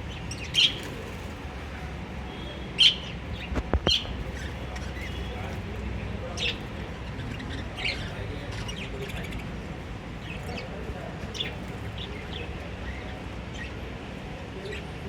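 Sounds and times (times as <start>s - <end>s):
lovebirds chirping: 0.0s - 1.3s, 2.4s - 5.6s, 6.2s - 14.0s
low background hum: 0.0s - 15.0s.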